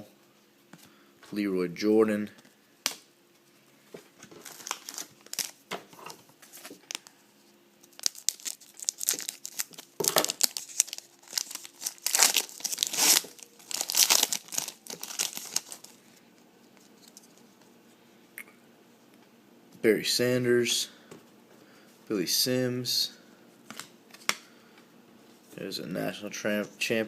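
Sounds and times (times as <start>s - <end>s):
foil wrapper crinkling: 4.2s - 5.6s, 7.8s - 16.0s.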